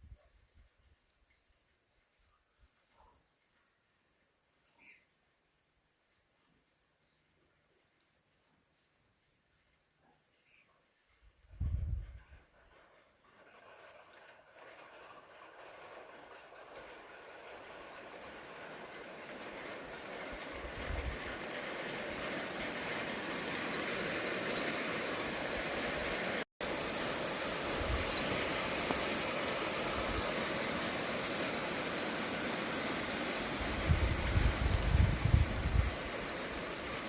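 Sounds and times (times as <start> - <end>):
heavy rain downpour: 13.4 - 37.0
low thunder rumbles: 33.6 - 36.2.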